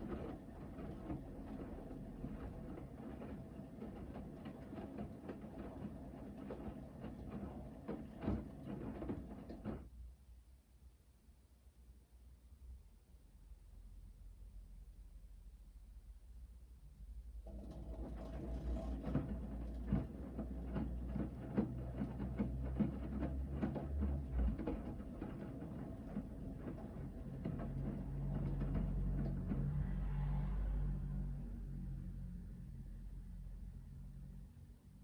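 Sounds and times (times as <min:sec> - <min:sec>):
washing machine motor humming: 0:00.0 - 0:09.8, 0:17.4 - 0:29.8
laundry knocking in drum: 0:18.3 - 0:29.7.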